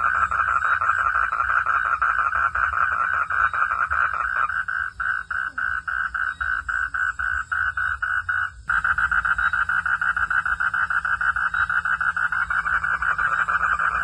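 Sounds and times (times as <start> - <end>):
frogs calling in pulses: 0.0 - 14.0.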